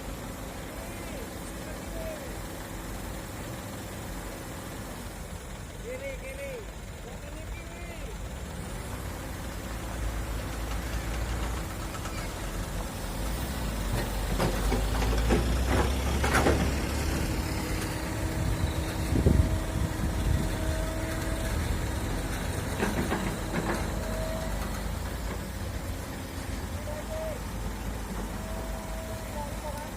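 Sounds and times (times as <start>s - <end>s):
excavator diesel engine running: 0.0s - 29.9s
knocks and clatters: 13.9s - 17.2s, 22.4s - 25.5s.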